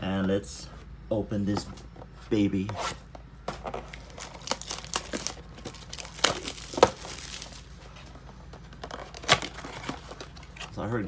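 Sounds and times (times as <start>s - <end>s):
wrapping crinkling and tearing: 3.6s - 8.0s.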